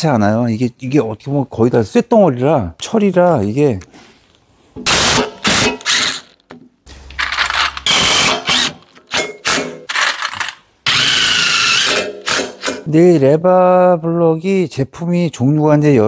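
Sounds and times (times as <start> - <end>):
metal clanking and scraping: 6.9 - 8.5.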